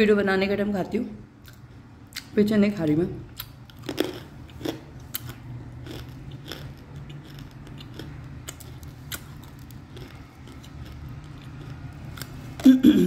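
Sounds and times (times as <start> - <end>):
clay crunching between teeth: 3.4 - 12.7.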